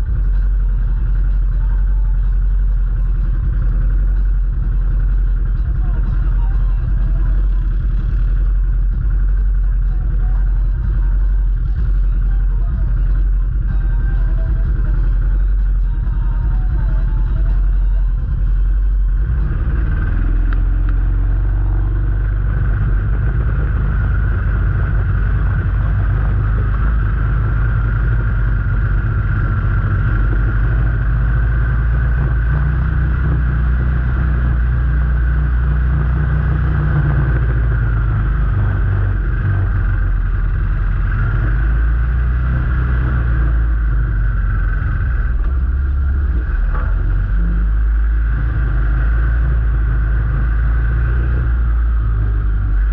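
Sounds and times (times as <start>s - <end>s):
vehicle engine low rumble: 0.0s - 52.9s.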